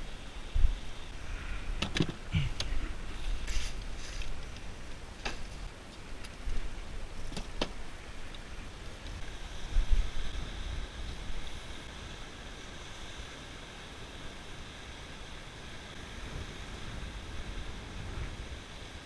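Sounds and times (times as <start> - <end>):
wind buffeting microphone: 0.0 - 13.2
sea surf hiss: 7.8 - 19.0.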